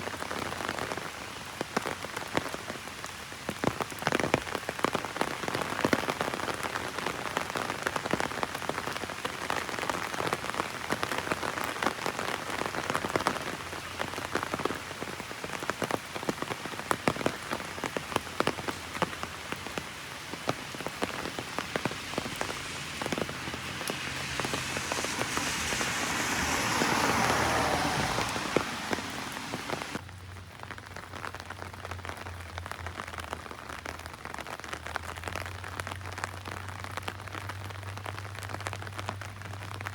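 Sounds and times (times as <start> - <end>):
heavy rain on an umbrella: 0.0 - 39.9.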